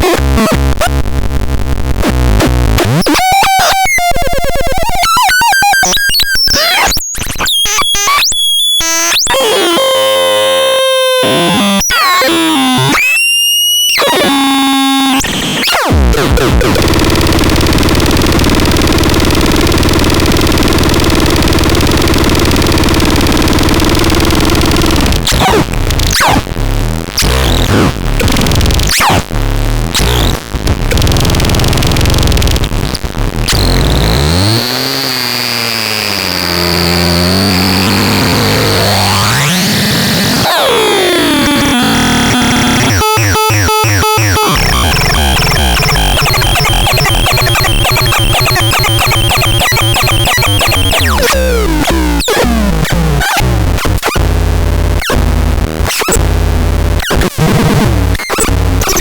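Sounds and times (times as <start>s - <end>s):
synthesizer glitchy gliding tones: 2.0s - 26.4s, 33.5s - 54.3s
synthesizer noise wash: 35.8s - 52.1s.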